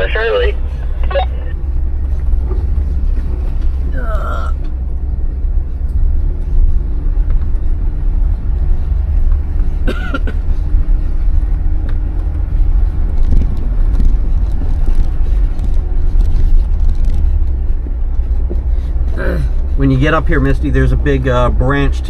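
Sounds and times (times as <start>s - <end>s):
off-road vehicle engine rumble: 0.0s - 22.0s.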